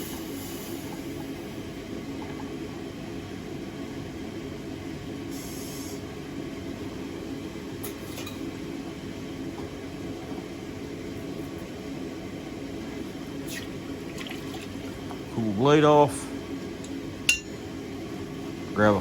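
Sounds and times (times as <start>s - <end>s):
gas torch flame roaring: 0.0s - 14.1s.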